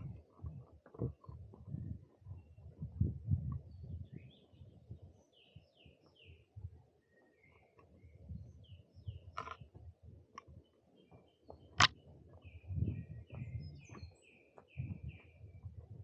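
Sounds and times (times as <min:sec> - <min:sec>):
woodland birds chirping: 0:03.6 - 0:15.8.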